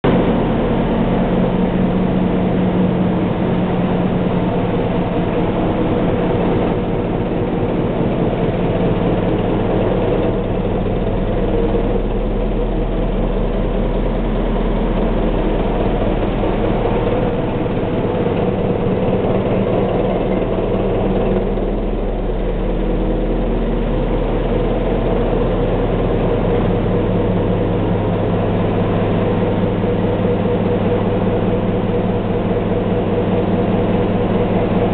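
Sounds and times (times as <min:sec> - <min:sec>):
diesel engine humming steadily: 0:00.0 - 0:34.9.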